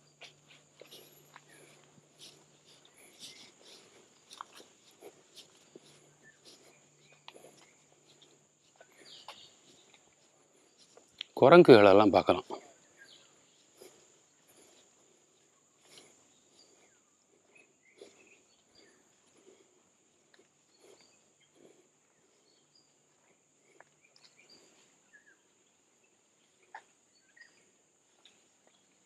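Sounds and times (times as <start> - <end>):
insect drone: 0.0 - 29.0
soft bird chirps: 0.0 - 29.0.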